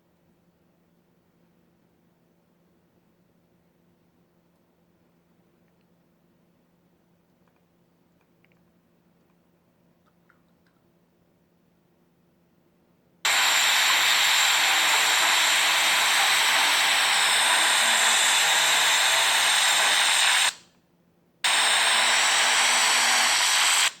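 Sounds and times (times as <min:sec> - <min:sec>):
loud static hiss: 0:13.3 - 0:20.6, 0:21.4 - 0:24.0.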